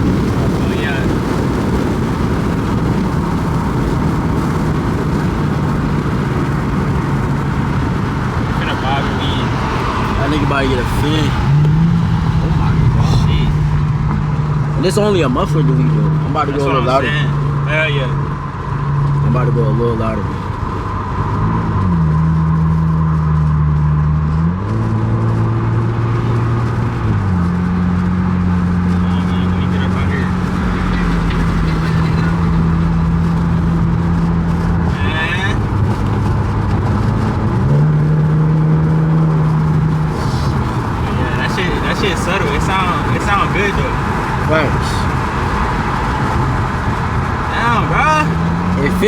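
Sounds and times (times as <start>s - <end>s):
car engine droning: 0.0s - 49.0s.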